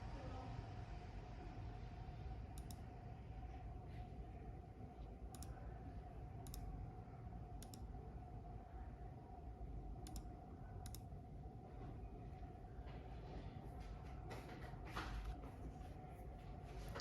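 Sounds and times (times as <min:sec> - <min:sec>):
faint steady hum: 0:00.0 - 0:17.0
mouse buttons clicking: 0:06.4 - 0:06.6, 0:07.6 - 0:07.8, 0:10.0 - 0:11.0.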